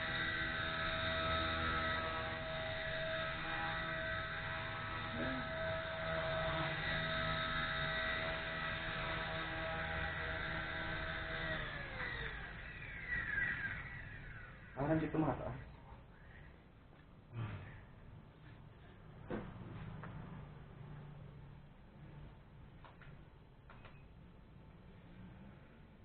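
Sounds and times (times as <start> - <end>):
rc helicopter rotor spinning: 0.0 - 15.6.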